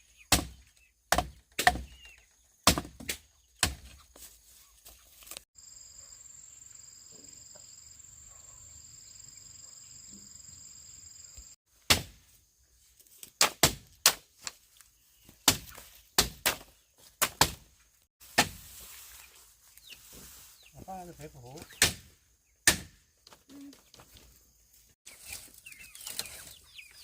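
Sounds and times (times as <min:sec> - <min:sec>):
bamboo chopping strikes: 0:00.3 - 0:04.0, 0:11.8 - 0:12.4, 0:13.2 - 0:14.6, 0:15.4 - 0:18.8, 0:21.6 - 0:23.1.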